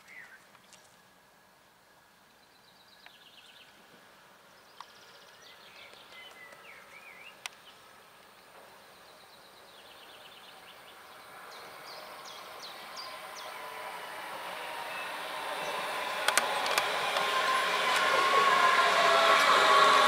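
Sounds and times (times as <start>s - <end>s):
birds chirping and trilling: 4.5s - 18.8s
electric train running: 7.4s - 20.0s.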